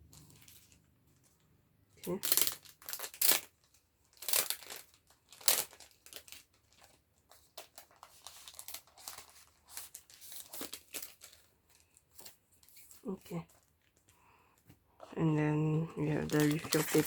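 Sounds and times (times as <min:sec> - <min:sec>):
packaging rustling and crinkling: 0:00.0 - 0:01.4, 0:02.2 - 0:14.1, 0:16.0 - 0:17.0.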